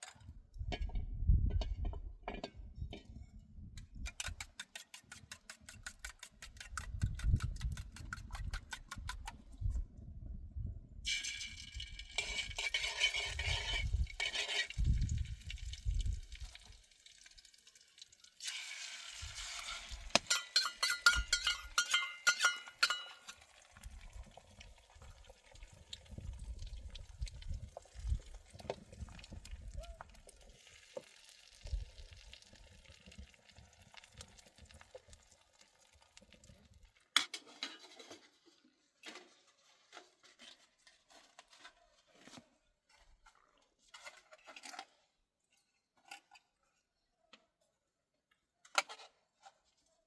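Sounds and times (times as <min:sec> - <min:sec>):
fast scraping of pots: 0:04.1 - 0:09.4, 0:11.1 - 0:15.2, 0:19.2 - 0:23.6
liquid splashing and pouring: 0:11.1 - 0:20.4, 0:22.8 - 0:36.9
metal clinking with ringing tone: 0:20.3 - 0:23.3.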